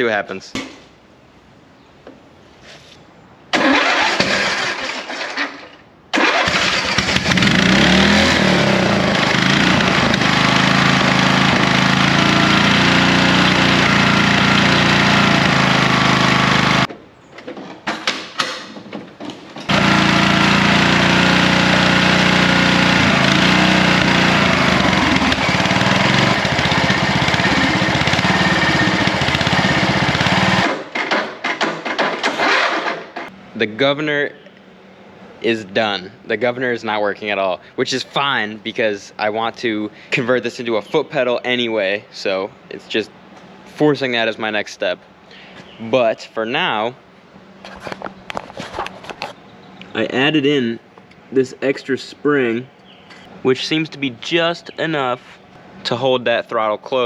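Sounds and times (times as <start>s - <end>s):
mower engine cranking and racing: 3.6s - 16.9s, 18.7s - 33.3s.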